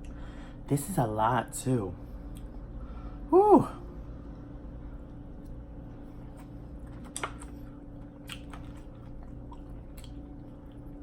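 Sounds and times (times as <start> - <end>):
low hum: 0.0 - 11.0
person chewing crunchy food: 6.2 - 11.0.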